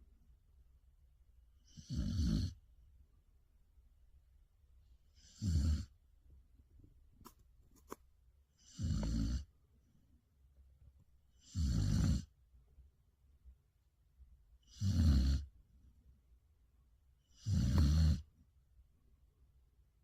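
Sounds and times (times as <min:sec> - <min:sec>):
dog snoring: 0:01.6 - 0:02.6, 0:05.1 - 0:06.0, 0:08.6 - 0:09.5, 0:11.3 - 0:12.3, 0:14.6 - 0:15.5, 0:17.3 - 0:18.3.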